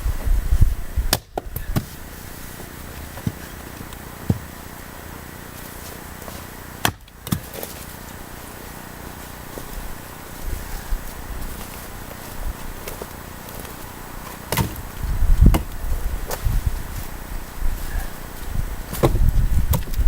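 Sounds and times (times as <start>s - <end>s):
axe chopping firewood: 1.1s - 2.0s, 3.0s - 4.6s, 5.6s - 7.9s, 12.8s - 16.5s, 18.9s - 20.0s.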